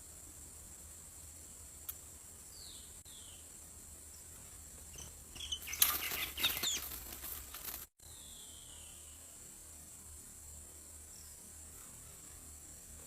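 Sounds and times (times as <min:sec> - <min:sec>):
bird chirps: 0:04.9 - 0:07.0
rapid wing flaps: 0:05.6 - 0:07.9.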